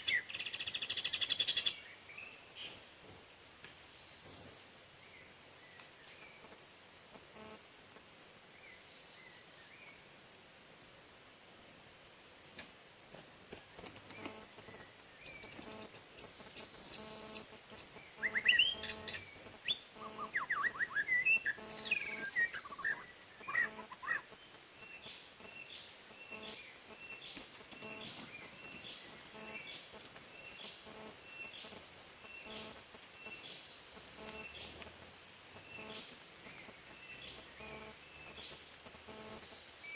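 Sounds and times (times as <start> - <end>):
high-pitched insect drone: 6.0 - 8.0, 13.9 - 39.9
bird singing whistles and trills: 18.2 - 24.2.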